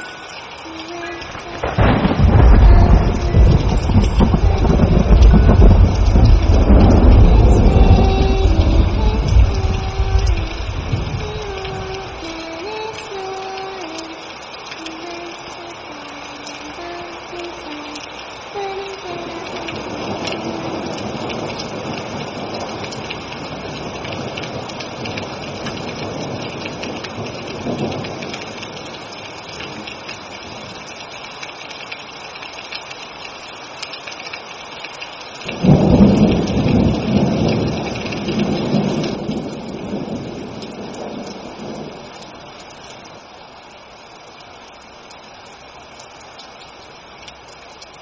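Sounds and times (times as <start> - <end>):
heavy rain: 0.0 - 48.0
thunder rumbling: 0.7 - 13.2, 19.0 - 30.8, 35.4 - 42.6.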